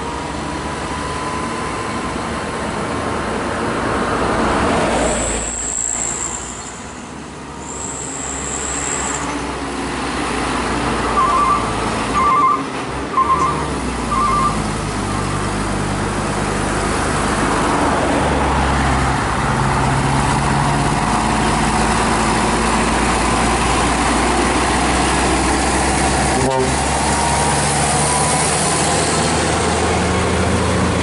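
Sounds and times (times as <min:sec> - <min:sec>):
truck diesel engine running: 0:07.1 - 0:31.0.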